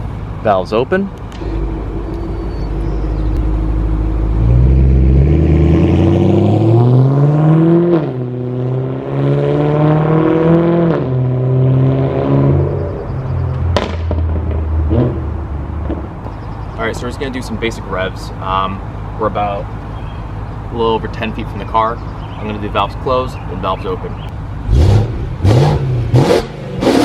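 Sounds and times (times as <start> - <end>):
car engine revving: 1.0 - 16.4, 24.2 - 27.0
sharp exhaust crack: 1.1 - 6.0.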